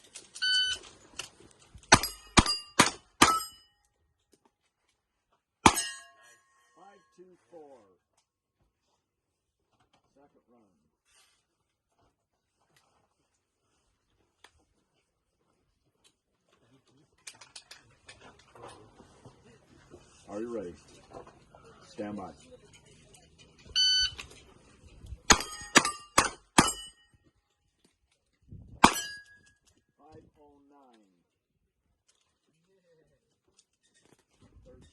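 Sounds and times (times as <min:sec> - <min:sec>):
steel target plate ringing: 0:01.9 - 0:03.8, 0:05.7 - 0:06.8, 0:25.3 - 0:27.1, 0:28.8 - 0:29.4
shot timer beep: 0:23.8 - 0:24.2.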